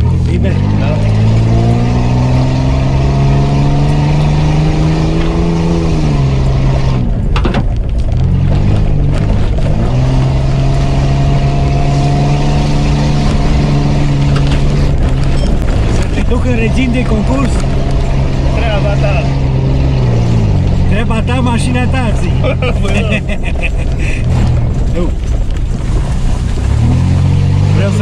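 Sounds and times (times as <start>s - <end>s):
engine pulling hard: 0.0s - 28.0s
body knocks and rattles: 7.1s - 10.2s, 13.2s - 18.6s, 22.5s - 27.5s.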